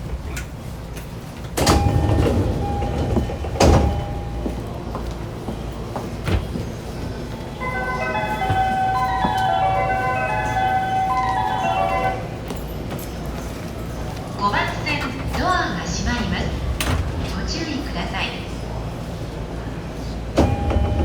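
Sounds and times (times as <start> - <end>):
train background hum: 0.0 - 21.0
chime melody: 7.6 - 12.4.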